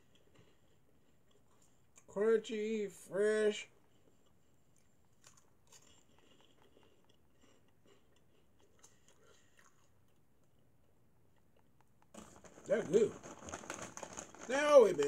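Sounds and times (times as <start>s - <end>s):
crunchy snack chewing: 4.1s - 10.7s, 11.3s - 15.0s.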